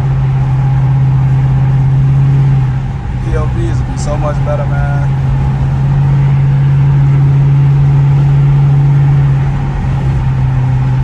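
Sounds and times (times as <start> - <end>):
car exhaust droning: 0.0 - 11.0.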